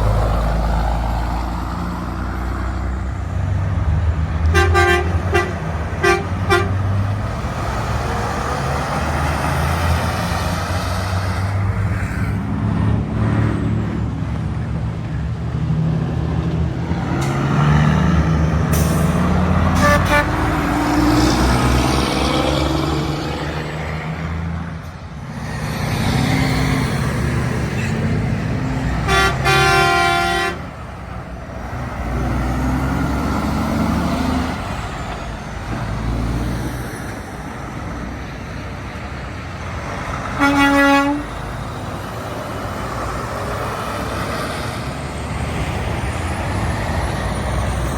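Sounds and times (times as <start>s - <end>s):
heavy trucks passing: 0.0s - 47.9s
long truck horn blast: 4.4s - 7.0s, 18.7s - 21.7s, 28.8s - 30.9s, 40.3s - 41.4s
truck horn toots: 4.5s - 6.9s, 19.6s - 20.8s, 28.9s - 30.8s, 40.4s - 41.4s.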